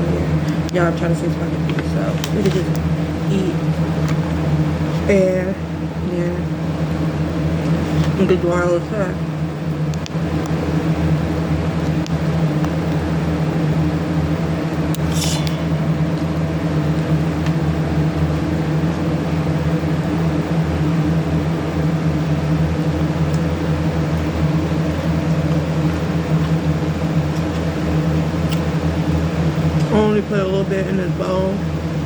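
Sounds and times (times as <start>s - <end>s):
machine hum: 0.0s - 32.0s.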